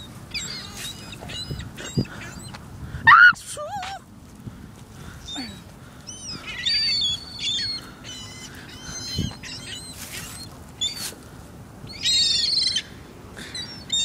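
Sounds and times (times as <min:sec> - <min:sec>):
birds squawking and chirping: 0:00.0 - 0:02.6, 0:05.0 - 0:11.2, 0:11.9 - 0:14.0.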